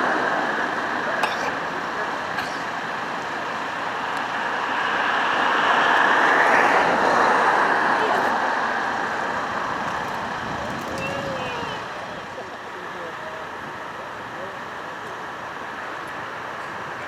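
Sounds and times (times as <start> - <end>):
jet engine rush: 0.0 - 12.5.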